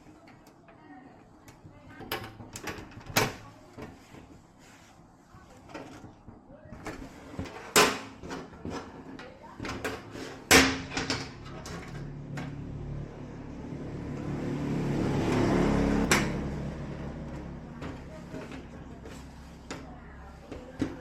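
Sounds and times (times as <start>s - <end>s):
vehicle engine hum: 11.6s - 20.4s.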